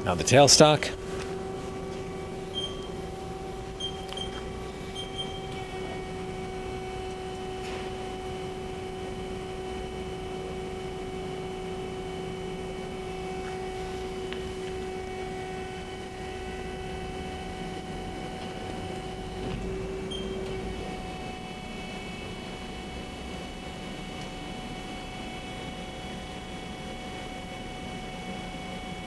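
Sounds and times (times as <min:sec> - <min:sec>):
lathe humming: 0:00.0 - 0:29.0
short high beeps: 0:02.5 - 0:02.9.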